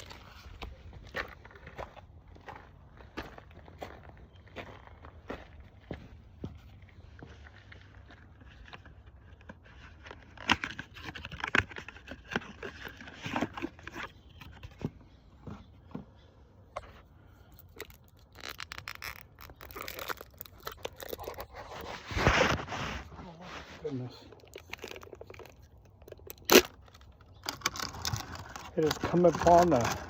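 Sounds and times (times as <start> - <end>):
parts and packaging handled: 0.0 - 1.1, 7.2 - 30.0
loud scraping crunch: 0.0 - 8.9, 16.8 - 30.0.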